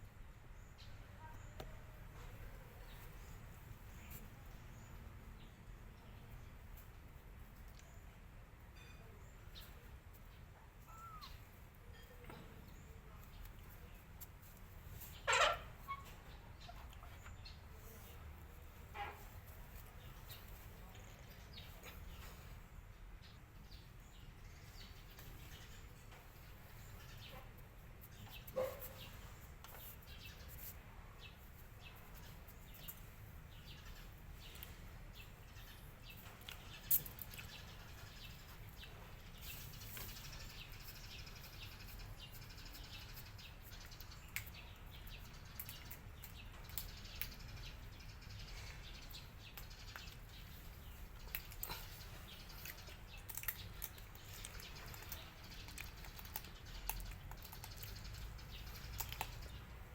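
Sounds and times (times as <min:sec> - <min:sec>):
cats crunching food: 0:49.6 - 0:59.9.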